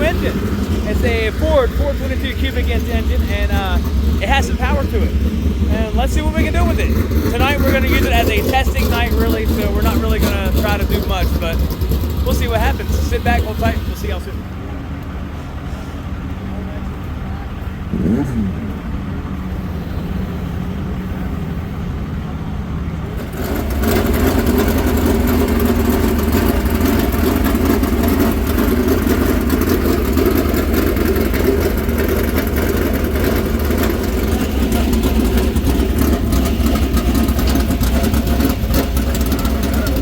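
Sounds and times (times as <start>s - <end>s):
race car engine droning: 0.0s - 40.0s.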